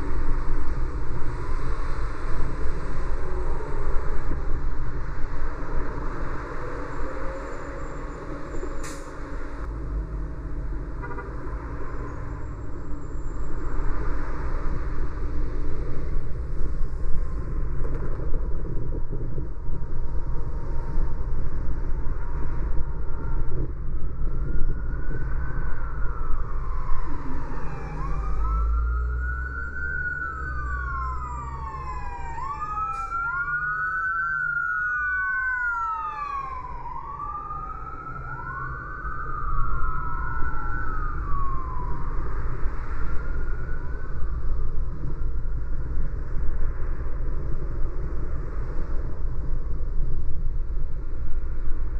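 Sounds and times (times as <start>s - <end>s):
car road noise: 0.0s - 51.9s
emergency siren wailing: 22.6s - 45.9s.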